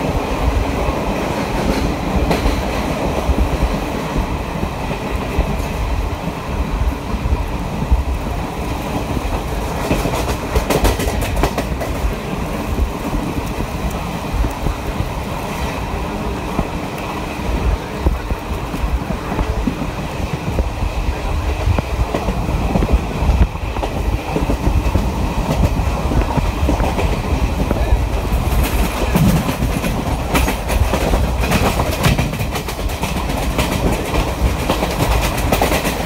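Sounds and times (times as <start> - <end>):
train wheels rumbling on rails: 0.0 - 36.0
wheels clacking over track: 7.5 - 36.0.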